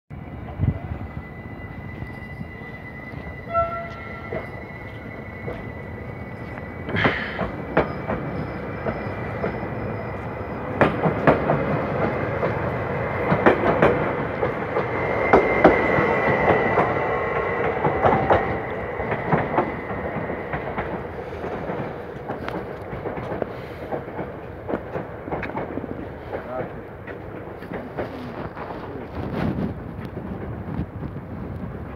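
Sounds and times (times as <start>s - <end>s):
train wheels clacking over rail joints: 6.5s - 31.2s.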